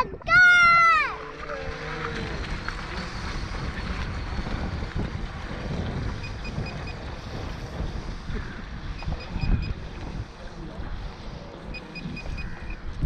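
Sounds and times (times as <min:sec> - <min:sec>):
wind buffeting microphone: 0:00.0 - 0:13.0
model boat motors whining: 0:00.7 - 0:07.6.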